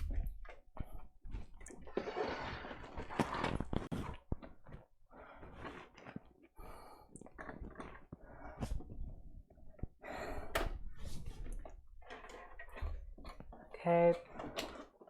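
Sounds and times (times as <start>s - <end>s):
plastic parts scraping: 0.0s - 6.4s, 10.6s - 15.0s.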